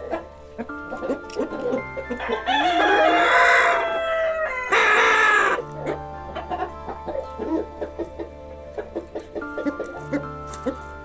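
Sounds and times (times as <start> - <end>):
quiet background music: 0.0 - 11.0
rooster crowing: 2.1 - 5.6.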